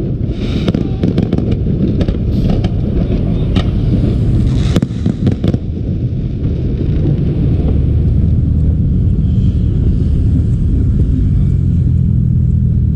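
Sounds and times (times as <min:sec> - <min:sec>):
fireworks bangs: 0:00.0 - 0:09.4
steady low rumble: 0:00.0 - 0:12.9.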